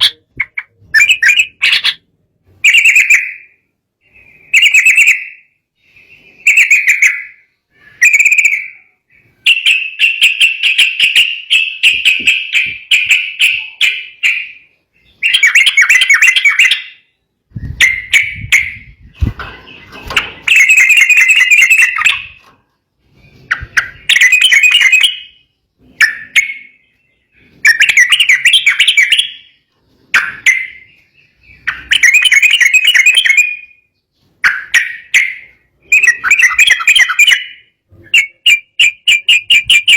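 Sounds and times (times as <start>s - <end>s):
bird singing chattering phrases: 0.0s - 2.1s.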